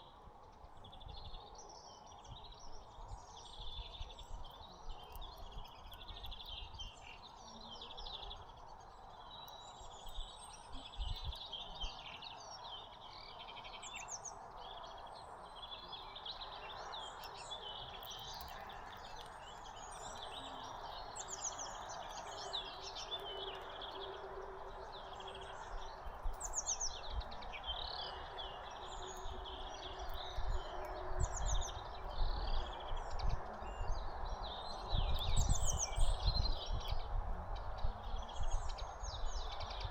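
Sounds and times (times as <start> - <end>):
small birds chirping: 3.5 - 39.9.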